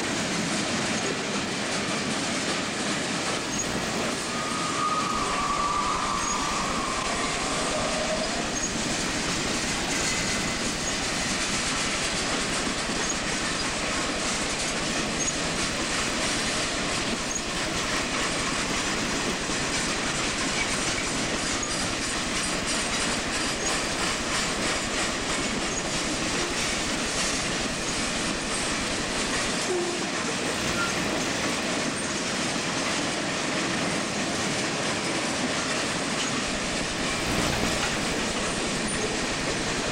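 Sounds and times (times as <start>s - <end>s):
freight train wheels rumbling: 0.0s - 39.9s
wheel squeal: 3.4s - 32.2s, 36.2s - 39.9s
wheels clicking over rail joints: 6.0s - 39.9s.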